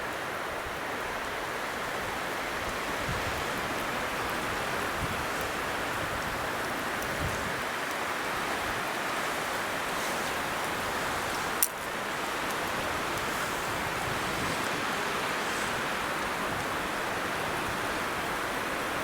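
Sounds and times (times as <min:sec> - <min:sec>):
storm precipitation hissing: 0:01.6 - 0:19.0.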